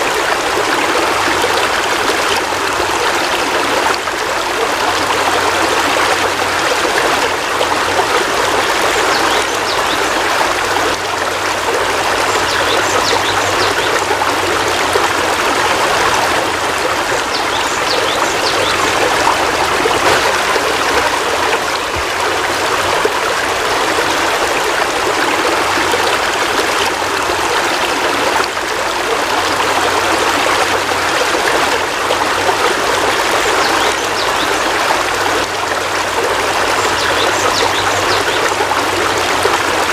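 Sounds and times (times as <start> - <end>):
heavy rain falling: 13.2 - 32.3.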